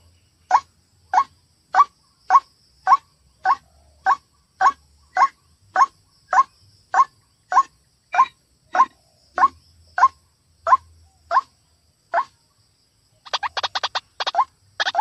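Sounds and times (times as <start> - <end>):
bird calling kwak notes: 0.4 - 11.5, 13.2 - 15.0.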